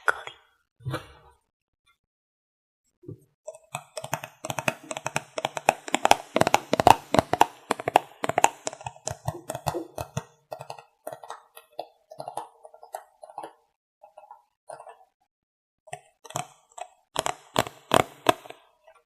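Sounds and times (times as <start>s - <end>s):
fingernails tapping makeup containers: 3.5s - 13.4s, 15.9s - 18.6s.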